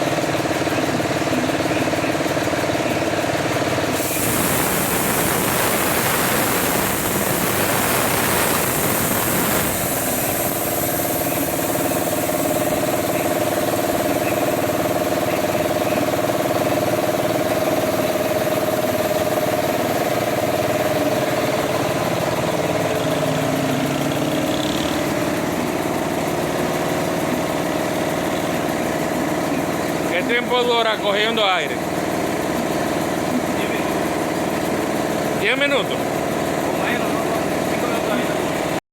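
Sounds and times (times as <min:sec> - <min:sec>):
engine running: 0:00.0 - 0:38.8
noisy rush: 0:03.9 - 0:14.6.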